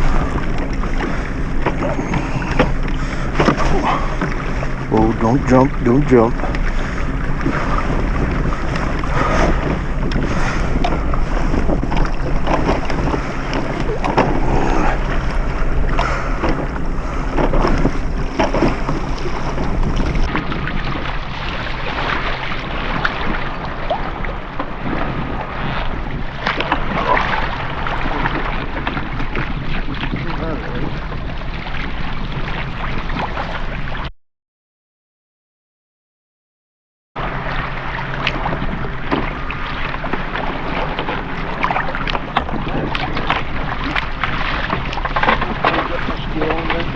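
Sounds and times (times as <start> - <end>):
knocks and splashes: 0.0 - 33.6, 37.2 - 46.9
wind buffeting microphone: 0.0 - 34.0
water lapping against kayak hull: 0.0 - 34.1, 37.2 - 46.9.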